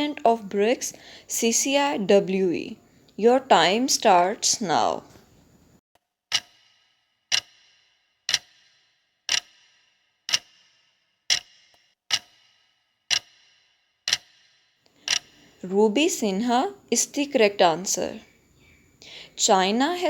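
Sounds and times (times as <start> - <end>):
clock ticks with brief ring: 6.3 - 7.7, 8.3 - 10.7, 11.3 - 15.2.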